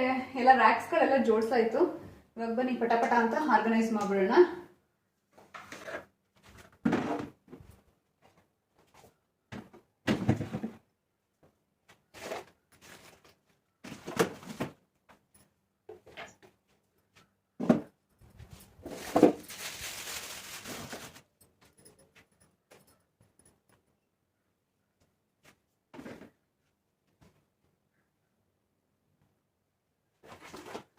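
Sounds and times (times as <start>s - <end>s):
items knocking on fridge shelves: 9.5s - 10.8s.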